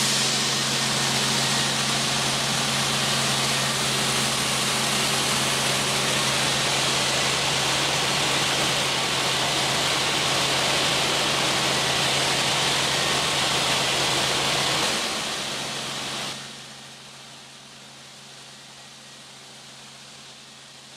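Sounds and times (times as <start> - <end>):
helicopter running: 0.0 - 16.4.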